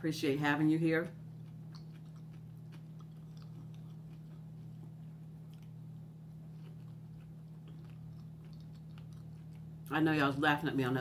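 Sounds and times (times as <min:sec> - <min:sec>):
steady low hum: 0:00.0 - 0:11.0
person chewing food: 0:01.2 - 0:09.9.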